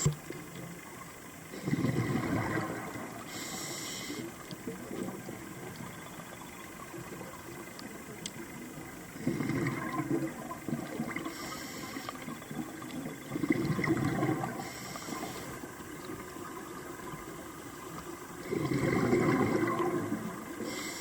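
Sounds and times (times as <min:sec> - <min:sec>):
exhaled bubbles underwater: 0:00.0 - 0:21.0
regulator inhale hiss: 0:03.0 - 0:04.6, 0:11.2 - 0:12.4, 0:14.5 - 0:15.8, 0:20.5 - 0:21.0.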